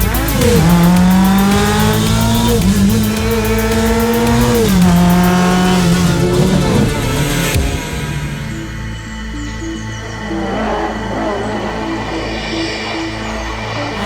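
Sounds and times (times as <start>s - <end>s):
race car engine pulling hard: 0.0s - 9.0s.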